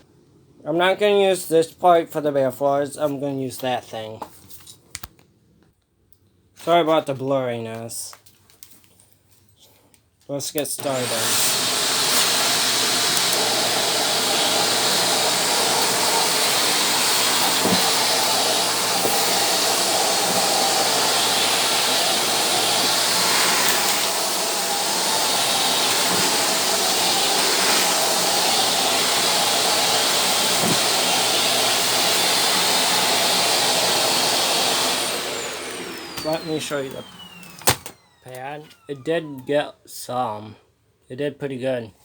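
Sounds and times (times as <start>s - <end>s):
floor cleaner rushing hiss: 10.8s - 37.8s.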